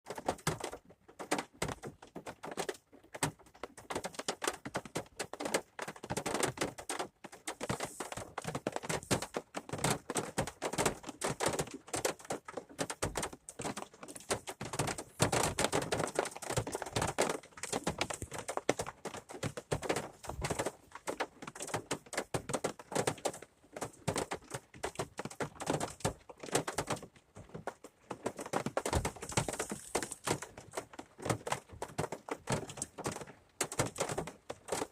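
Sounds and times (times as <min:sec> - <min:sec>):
rain tapping on hard surface: 0:00.1 - 0:34.9.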